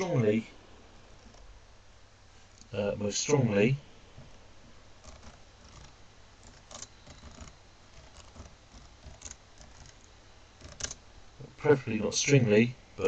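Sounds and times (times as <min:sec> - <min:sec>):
pen scratching and tapping on board: 0:05.0 - 0:10.0, 0:10.6 - 0:11.0.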